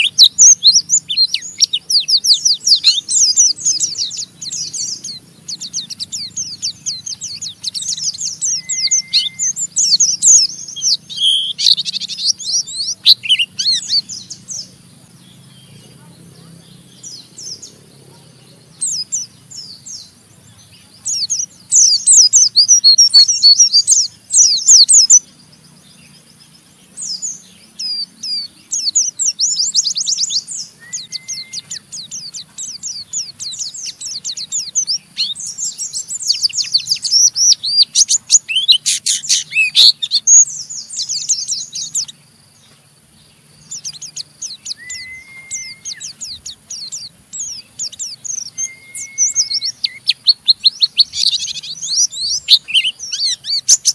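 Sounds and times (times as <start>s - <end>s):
bird harsh fast twittering: 0.0s - 53.9s
short flat bird whistles: 8.5s - 9.6s, 30.8s - 31.8s, 44.7s - 46.0s, 48.5s - 50.0s.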